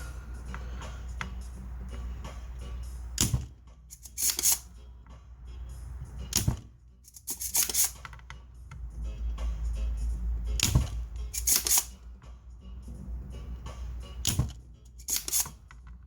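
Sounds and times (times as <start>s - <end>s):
steady low hum: 0.0s - 3.9s.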